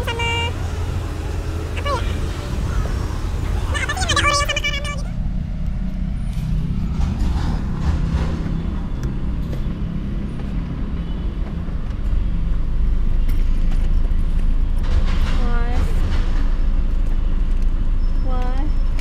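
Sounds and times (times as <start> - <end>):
car engine idling: 0.0 - 6.3.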